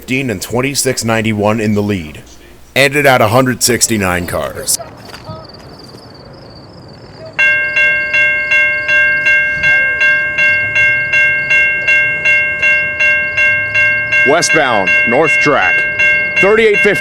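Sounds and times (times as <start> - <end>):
level-crossing warning bell: 0.0 - 2.2, 7.2 - 17.0.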